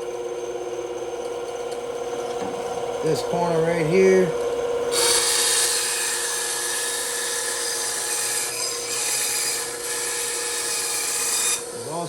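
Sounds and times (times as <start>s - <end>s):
bandsaw cutting wood: 4.9s - 12.0s.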